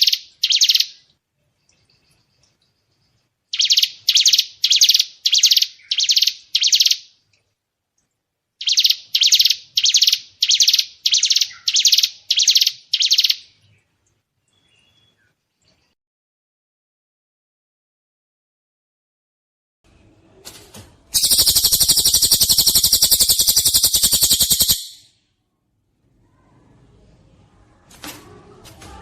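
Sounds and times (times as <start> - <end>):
songbird rapid repeated notes: 3.6 - 7.0, 8.6 - 13.4, 21.2 - 25.1.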